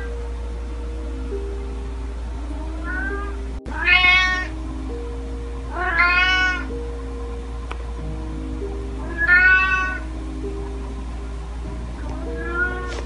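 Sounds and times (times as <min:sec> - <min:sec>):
soft background music: 0:00.0 - 0:13.0
kitten meowing: 0:02.7 - 0:04.5, 0:05.7 - 0:06.7, 0:09.0 - 0:10.0, 0:12.3 - 0:13.0.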